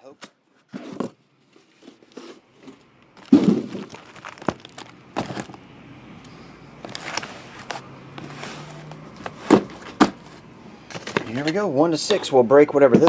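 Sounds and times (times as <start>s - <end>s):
plastic crinkling: 1.5s - 11.5s
boxes knocking: 3.2s - 5.6s, 9.2s - 11.5s.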